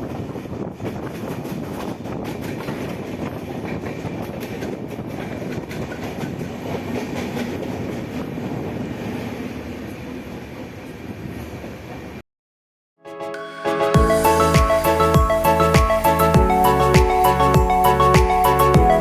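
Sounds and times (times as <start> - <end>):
train wheels rumbling on rail: 0.0 - 12.2.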